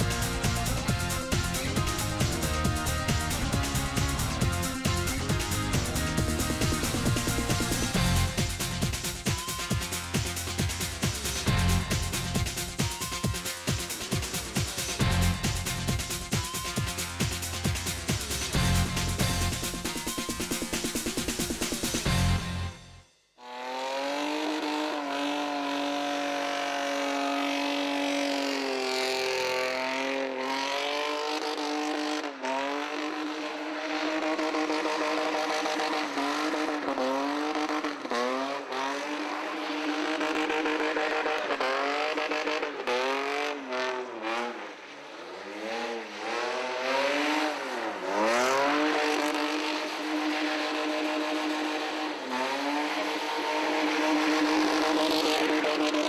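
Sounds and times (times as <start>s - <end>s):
car engine revving hard: 0.0s - 9.3s, 23.4s - 56.0s
tyres spinning in a burnout: 0.0s - 22.3s, 23.8s - 56.0s.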